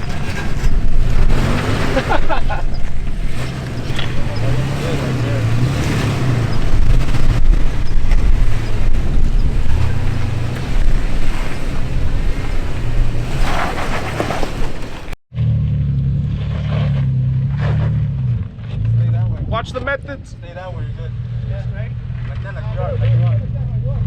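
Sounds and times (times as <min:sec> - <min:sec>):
wind noise on microphone: 0:00.0 - 0:15.0
truck engine idling: 0:00.0 - 0:15.2.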